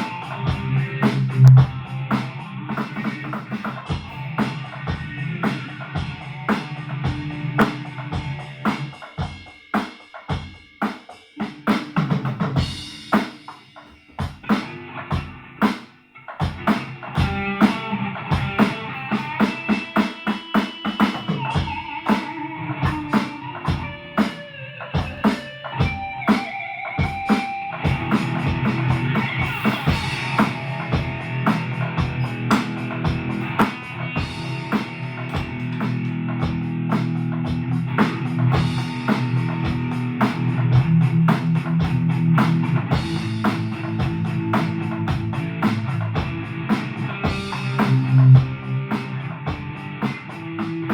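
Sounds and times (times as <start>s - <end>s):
drum kit beat: 0.0s - 50.9s
guitar chords: 21.3s - 50.9s.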